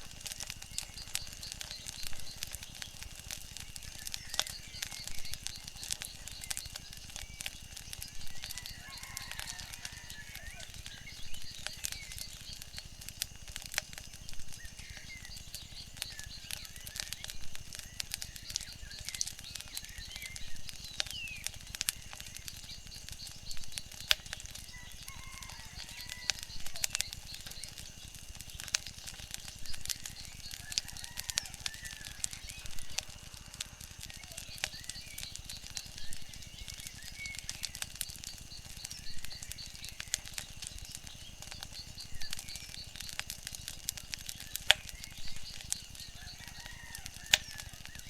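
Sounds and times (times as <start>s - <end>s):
wood fire crackling: 0.0s - 48.0s
bird chirps: 14.5s - 48.0s.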